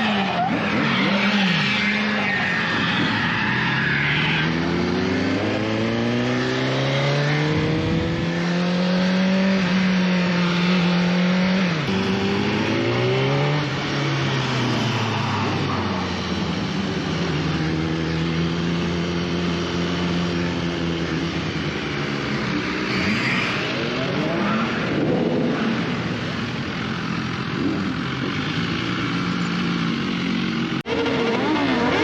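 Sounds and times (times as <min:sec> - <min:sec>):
wind noise: 0:07.4 - 0:08.5
motorcycle engine running: 0:23.8 - 0:32.0.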